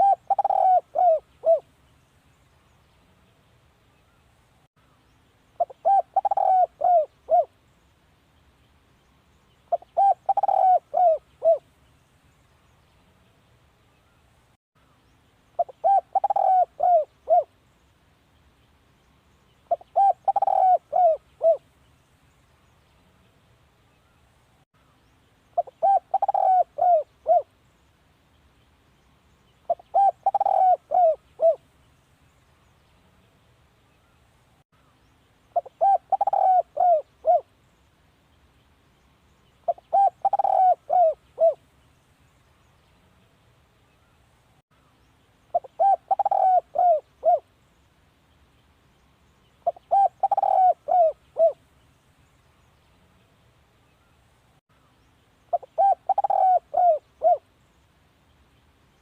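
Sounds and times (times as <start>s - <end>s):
dove cooing: 0.0s - 1.7s, 5.6s - 7.6s, 9.7s - 11.6s, 15.6s - 17.6s, 19.7s - 21.6s, 25.6s - 27.5s, 29.7s - 31.6s, 35.6s - 37.5s, 39.6s - 41.6s, 45.5s - 47.5s, 49.6s - 51.6s, 55.5s - 57.5s.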